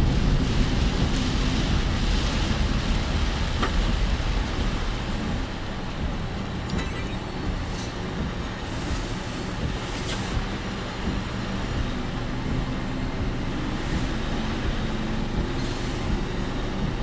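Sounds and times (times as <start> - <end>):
car tyres and engine rumble: 0.0 - 17.0
rain and wind: 0.0 - 17.0.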